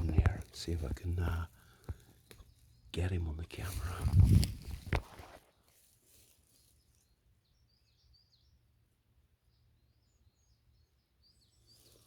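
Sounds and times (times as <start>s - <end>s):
faint high bird chirps: 6.4s - 8.8s, 9.4s - 12.0s.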